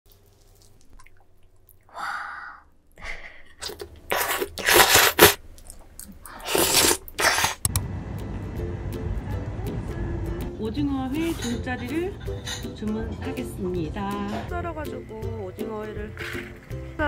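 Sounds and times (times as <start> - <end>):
loud sharp slurping: 3.6 - 5.4, 6.2 - 7.7
low street hum: 7.6 - 17.0.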